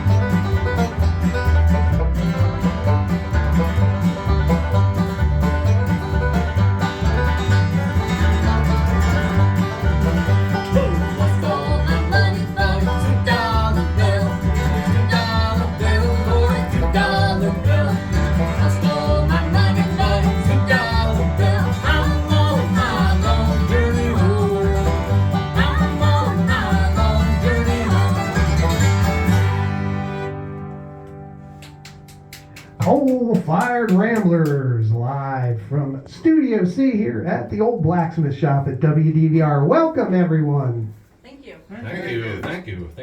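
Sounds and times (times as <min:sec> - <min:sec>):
fiddle-like melody: 0:00.0 - 0:31.5
banjo: 0:00.0 - 0:31.6
acoustic guitar: 0:00.0 - 0:36.3
upright bass: 0:00.0 - 0:40.9.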